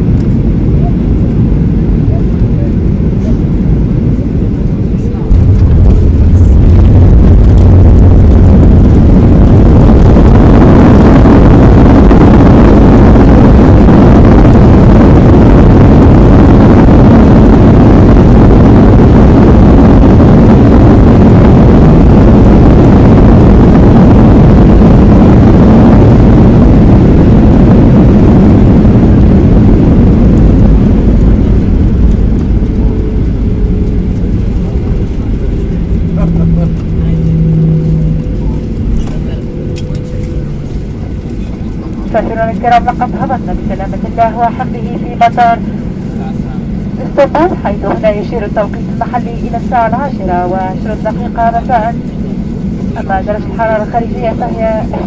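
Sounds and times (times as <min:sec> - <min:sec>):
jet engine roar in cabin: 0:00.0 - 0:55.0
rushing air: 0:05.2 - 0:47.6.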